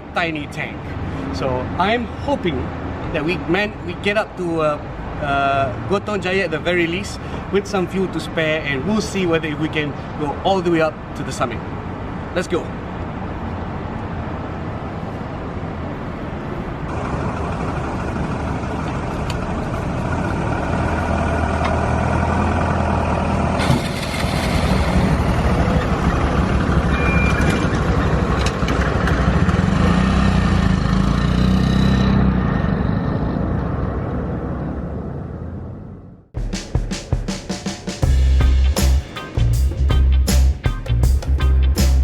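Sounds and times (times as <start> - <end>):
road noise: 0.0 - 42.0
motorcycle engine pulling: 23.6 - 30.4.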